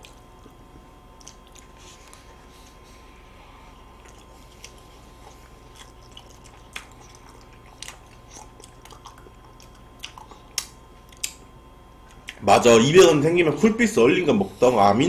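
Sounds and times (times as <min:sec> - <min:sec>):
chewing and biting: 0:00.0 - 0:02.8, 0:03.8 - 0:11.4
mouth clicks and smacks: 0:01.2 - 0:01.8, 0:05.4 - 0:12.4.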